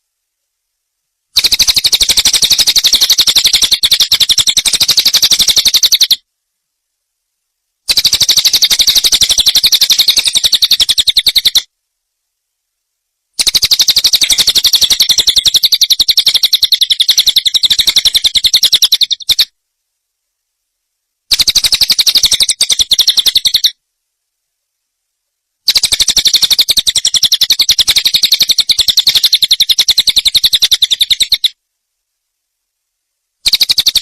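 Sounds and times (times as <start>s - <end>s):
songbird chattering trill: 1.4s - 6.2s, 7.9s - 11.7s, 13.4s - 19.5s, 21.3s - 23.8s, 25.7s - 31.6s, 33.4s - 34.0s.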